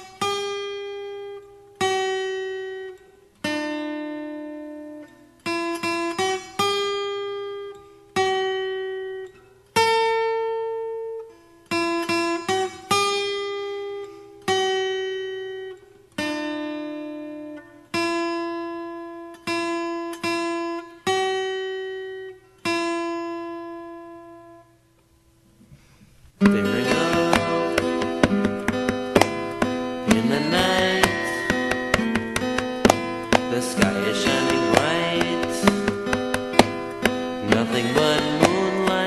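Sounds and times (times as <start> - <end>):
acoustic guitar plucked notes: 0.0 - 24.9, 25.8 - 39.0.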